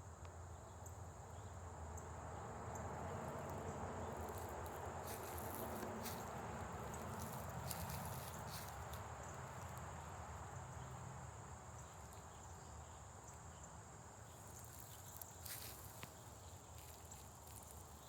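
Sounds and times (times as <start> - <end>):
high-pitched insect trill: 3.2 - 13.1, 14.2 - 18.0.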